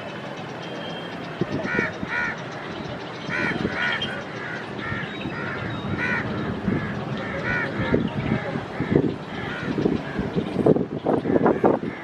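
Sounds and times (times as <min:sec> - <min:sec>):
steady background noise: 0:00.0 - 0:12.0
crows cawing: 0:01.6 - 0:02.7, 0:03.3 - 0:10.3, 0:11.2 - 0:12.0.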